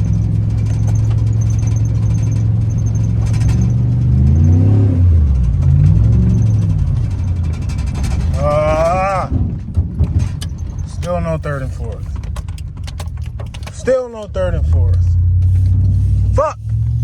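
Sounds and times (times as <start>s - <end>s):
truck engine under load: 0.0s - 17.0s.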